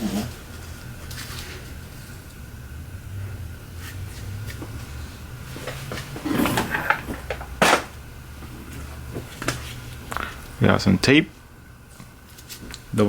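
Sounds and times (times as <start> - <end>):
low steady hum: 0.0 - 13.0
clattering knocks in drawer: 6.2 - 7.9.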